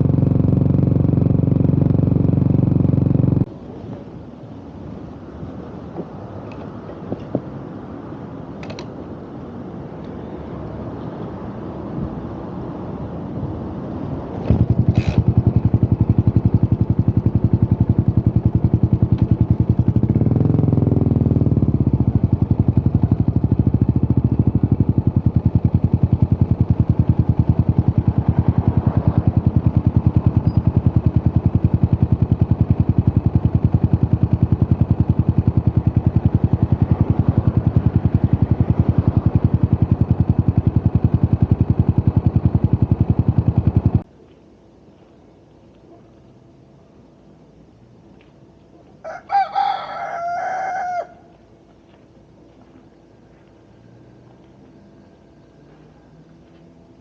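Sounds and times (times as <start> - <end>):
mechanical clatter: 0.0 - 3.5, 14.4 - 44.0
motorcycle engine starting and idling: 0.0 - 3.5, 14.3 - 44.1.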